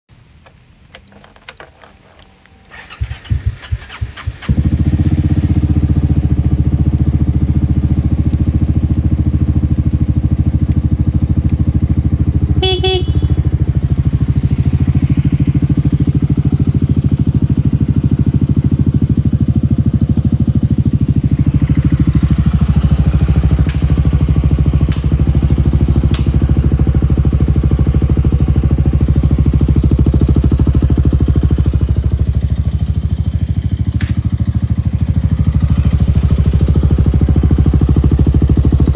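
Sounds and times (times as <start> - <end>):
scooter engine idling: 2.7 - 38.9
horn beep: 12.4 - 14.8
sharp clicks: 23.6 - 23.9, 24.9 - 25.2, 26.1 - 26.4, 33.9 - 34.4.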